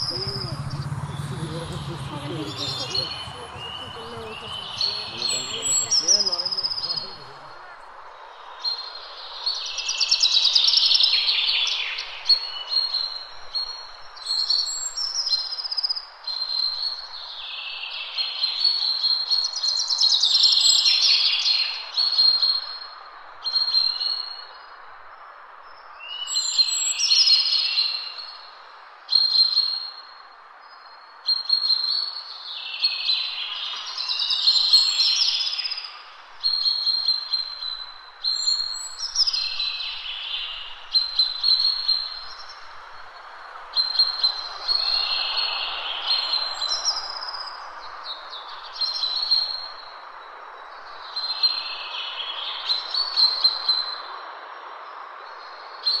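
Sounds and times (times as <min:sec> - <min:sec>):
bird chirping: 0:00.0 - 0:07.9.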